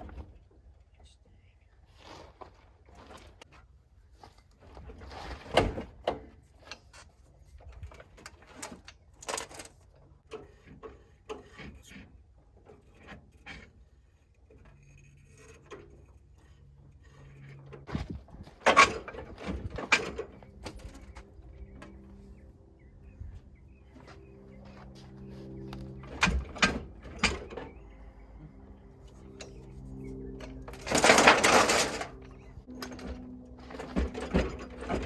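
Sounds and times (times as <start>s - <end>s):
loud clatter: 30.4s - 35.0s.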